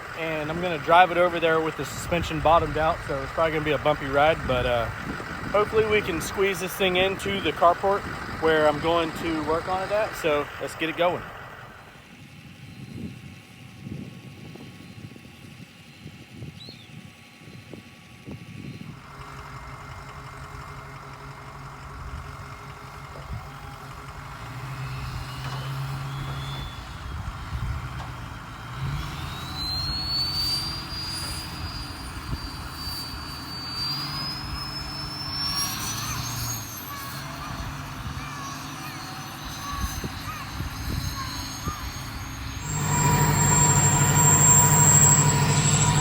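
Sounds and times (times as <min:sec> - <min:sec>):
diesel truck engine running: 0:00.0 - 0:46.0
high whistle rising in pitch: 0:24.8 - 0:27.7, 0:28.7 - 0:46.0.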